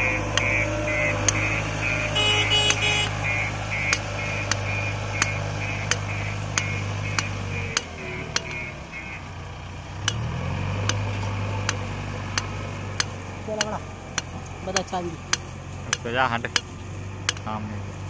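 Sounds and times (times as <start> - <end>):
rapid high pulsing tone: 0.0 - 8.7
sharp ticking: 0.0 - 8.8, 10.1 - 17.6
diesel engine running: 0.0 - 18.0.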